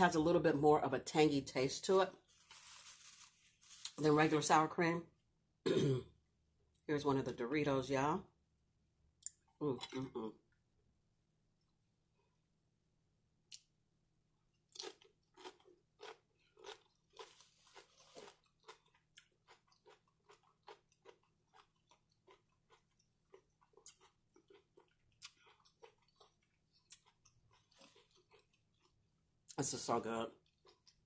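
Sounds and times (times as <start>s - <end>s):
chip crunching: 2.3s - 4.1s, 14.7s - 29.0s.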